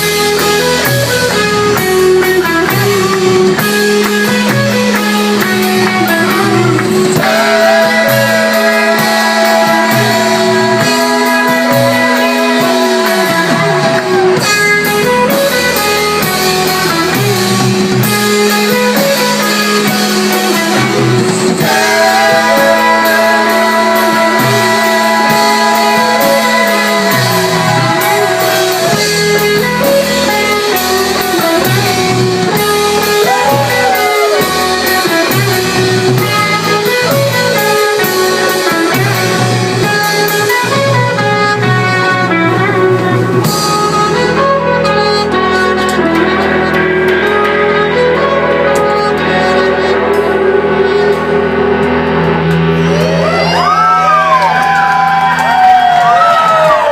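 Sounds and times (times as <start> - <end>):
electric guitar: 0.0 - 56.9
live rock band playing: 0.0 - 56.9
person singing: 5.6 - 15.4, 18.9 - 51.6.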